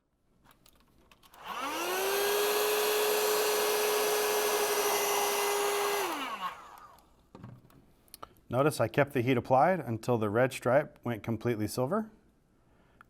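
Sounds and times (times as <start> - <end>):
heat gun fan whine: 1.4 - 7.1.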